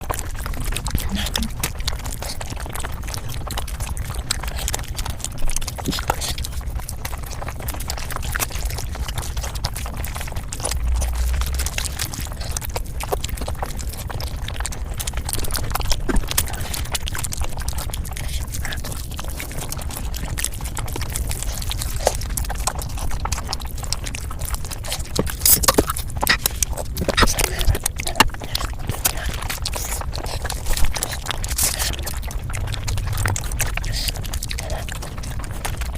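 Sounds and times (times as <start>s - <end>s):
wet chewing and smacking: 0.0s - 35.9s
low hum: 8.9s - 16.9s, 20.7s - 35.9s.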